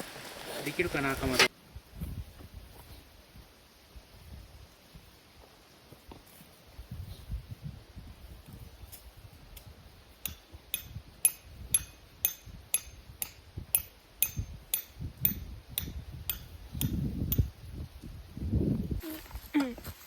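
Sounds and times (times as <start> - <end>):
sharp ringing knocks: 10.2 - 17.5.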